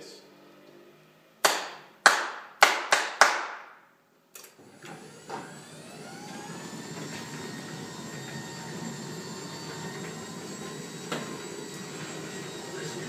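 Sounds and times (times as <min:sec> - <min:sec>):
hand claps: 0:01.4 - 0:03.8
garage door opener running: 0:04.4 - 0:13.0.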